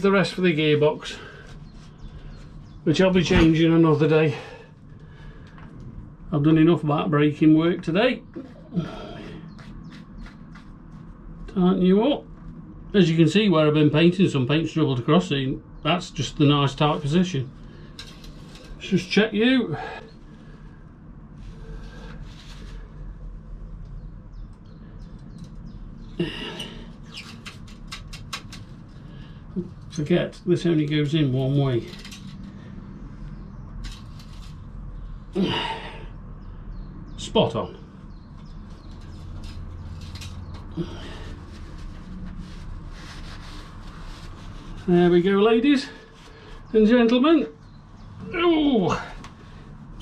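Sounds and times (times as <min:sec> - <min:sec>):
steady low hum: 0:00.0 - 0:50.0
rustling and light clicks: 0:09.5 - 0:11.4, 0:17.8 - 0:18.8, 0:27.0 - 0:31.0, 0:31.7 - 0:34.8, 0:38.3 - 0:44.9
tools clicking and rustling: 0:27.2 - 0:28.9, 0:31.9 - 0:32.6, 0:38.9 - 0:40.7
person grunting: 0:35.4 - 0:36.0.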